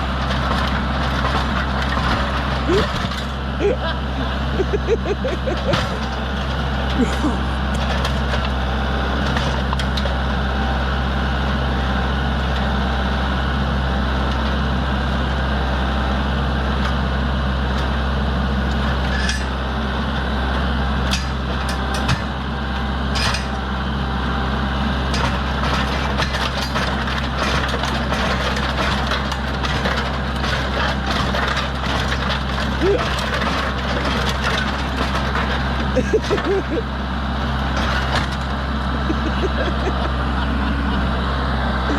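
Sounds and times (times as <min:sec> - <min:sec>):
tractor engine running: 0:00.0 - 0:41.9
sharp knocks of mower crushed: 0:00.3 - 0:03.4, 0:04.6 - 0:06.2.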